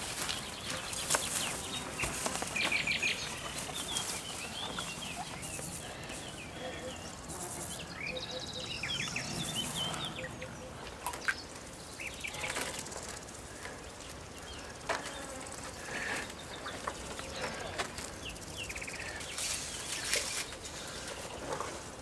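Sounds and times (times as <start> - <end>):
high chirping calls: 0.2 - 13.0.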